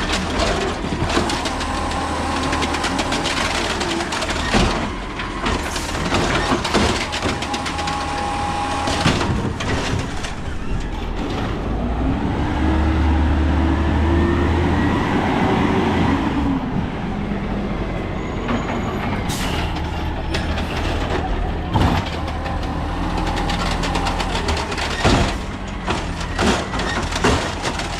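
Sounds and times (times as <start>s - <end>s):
diesel engine revving: 0.0s - 18.2s, 19.1s - 27.9s
metal clanks and knocks: 18.5s - 27.9s.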